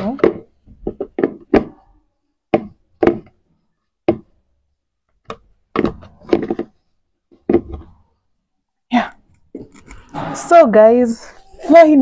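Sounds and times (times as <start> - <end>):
objects knocking and tapping: 0.0 - 4.4, 5.1 - 8.2, 9.3 - 10.5.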